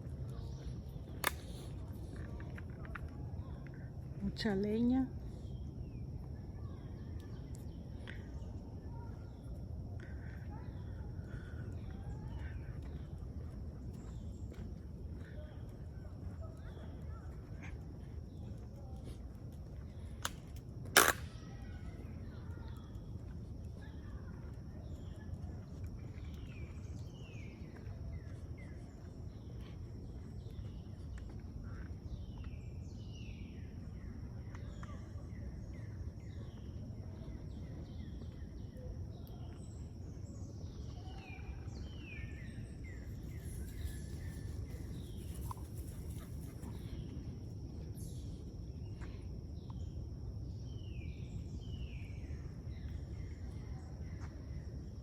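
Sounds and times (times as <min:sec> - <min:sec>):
birds chirping: 0:22.0 - 0:49.9.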